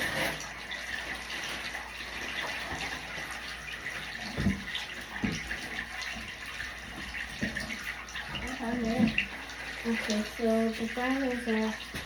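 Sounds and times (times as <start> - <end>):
shower water running: 0.0 - 12.0
dull thumps: 4.3 - 5.6.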